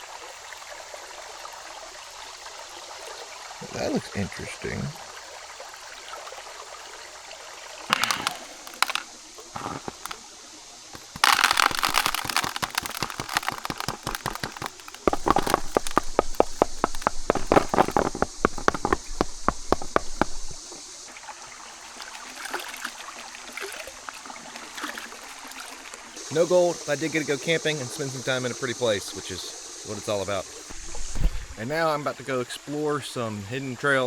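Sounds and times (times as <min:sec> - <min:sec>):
creek running: 0:00.0 - 0:34.0
stones rattling in a pan: 0:07.9 - 0:10.2, 0:11.0 - 0:20.6
water sloshing in a pan: 0:11.0 - 0:19.0, 0:19.8 - 0:26.2.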